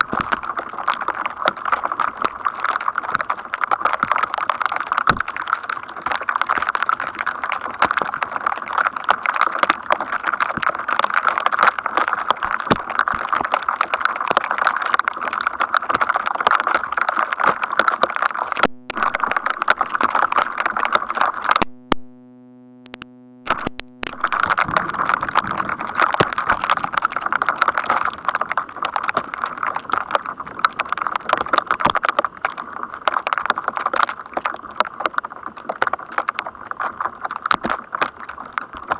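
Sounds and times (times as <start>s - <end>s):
electrostatic crackling: 0.0s - 38.9s
steady electrical buzz: 18.6s - 19.7s, 21.6s - 24.5s.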